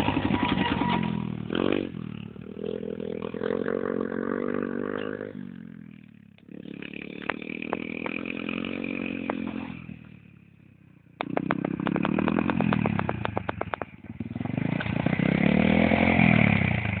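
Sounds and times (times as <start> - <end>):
small motorbike engine revving: 0.0 - 10.2, 11.2 - 17.0
sharp ticks: 11.2 - 13.9.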